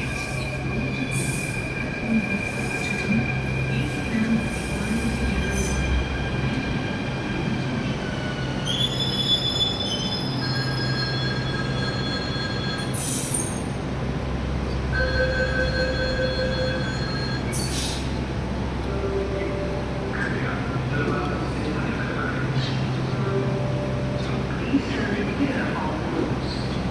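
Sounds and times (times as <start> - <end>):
train wheels squealing on rails: 0.0 - 6.1, 7.8 - 13.8, 15.0 - 18.2.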